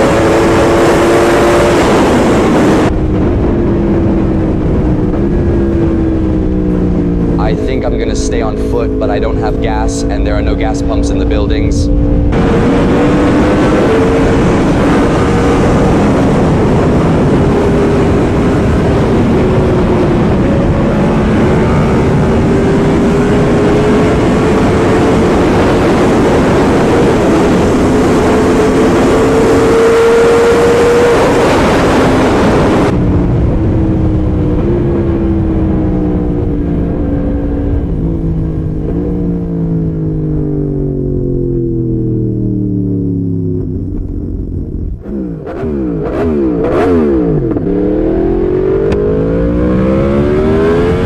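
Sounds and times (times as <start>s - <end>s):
wind rushing: 0.0s - 40.0s
motorcycle engine at speed: 0.0s - 51.0s.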